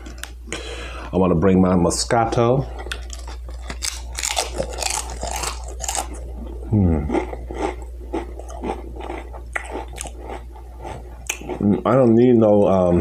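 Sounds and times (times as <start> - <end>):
chewing crunchy chips: 2.6 - 13.0
person humming: 6.7 - 7.1.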